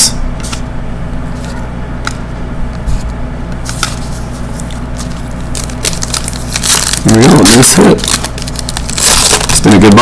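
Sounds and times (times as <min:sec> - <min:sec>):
low electrical hum: 0:00.0 - 0:10.0
trading cards rustling and clicking: 0:03.6 - 0:10.0.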